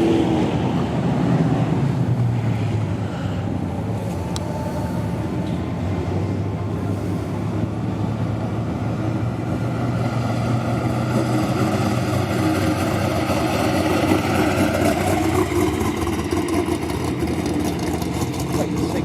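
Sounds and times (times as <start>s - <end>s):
car engine running: 0.8s - 19.0s.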